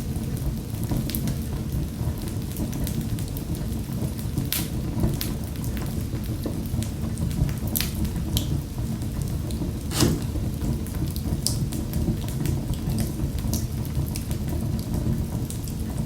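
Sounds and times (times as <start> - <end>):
wood fire crackling: 6.7 - 16.0
sharp pops of burning wood: 9.9 - 10.7.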